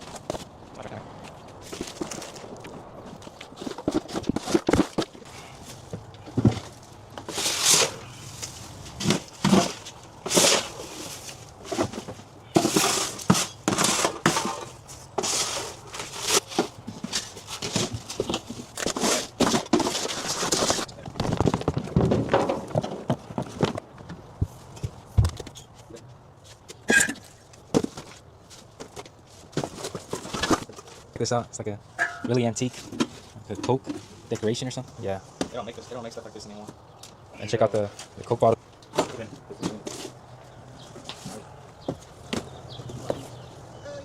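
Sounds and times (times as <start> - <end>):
rustling and scraping: 0.0 - 44.0
knocks and thunks of clutter: 1.2 - 31.1, 38.8 - 40.2, 40.8 - 43.4.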